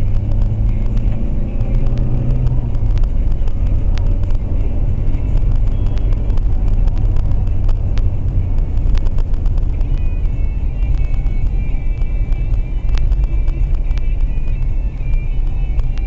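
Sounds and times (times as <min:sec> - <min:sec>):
car engine and road noise: 0:00.0 - 0:16.0
faint clicks: 0:00.0 - 0:16.0.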